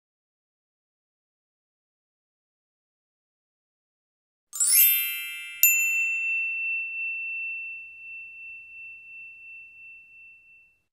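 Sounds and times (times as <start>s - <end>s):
shimmering high chimes: 4.6s - 10.8s
bright ringing ding: 4.6s - 10.9s.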